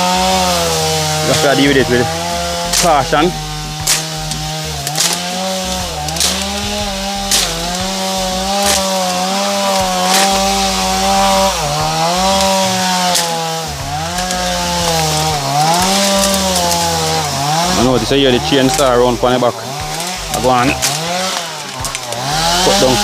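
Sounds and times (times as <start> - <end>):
chainsaw cutting brush: 0.0 - 23.0.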